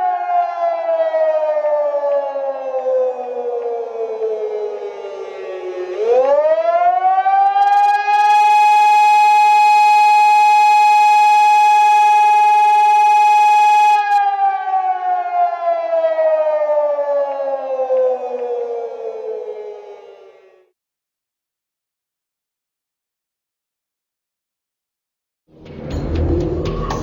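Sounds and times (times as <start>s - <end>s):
warning siren wailing: 0.0s - 20.7s.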